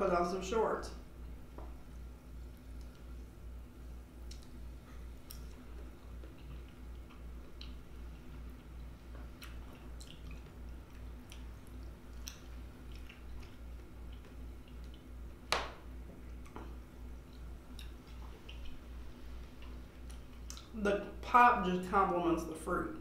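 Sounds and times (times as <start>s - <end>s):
low pulsing hum: 0.0s - 23.0s
wet chewing: 4.2s - 15.2s, 16.2s - 20.8s.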